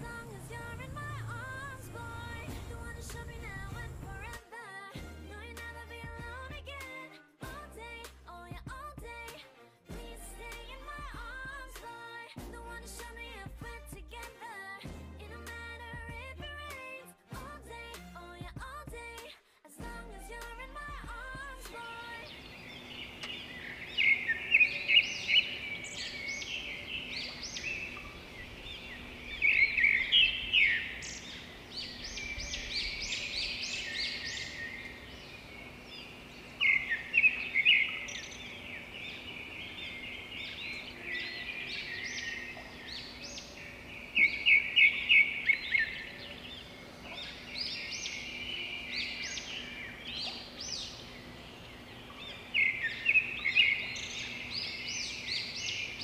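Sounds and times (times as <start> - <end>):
faint steady hum: 0.0 - 4.4, 19.8 - 56.0
songbirds singing: 0.0 - 4.4, 21.0 - 56.0.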